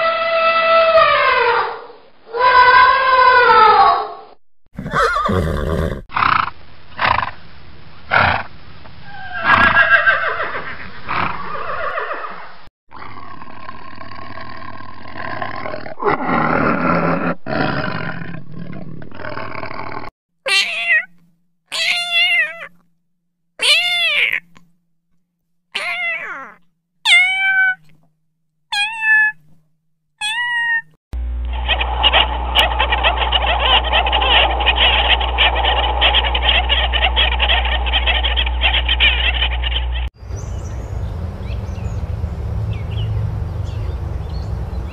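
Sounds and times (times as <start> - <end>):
horses neighing: 4.7 - 6.3, 9.1 - 12.5.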